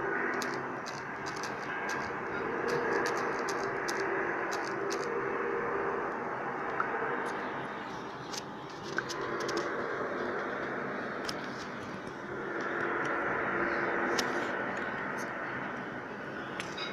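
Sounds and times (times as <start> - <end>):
droning hum from the sky: 0.0 - 16.9.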